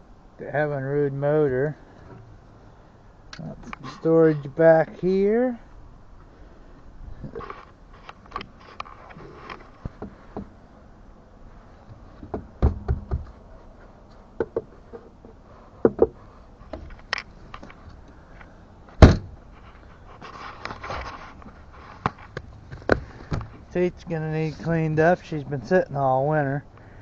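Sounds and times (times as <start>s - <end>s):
rustling: 11.4s - 25.8s
loud thump: 12.6s - 13.3s, 19.0s - 19.4s.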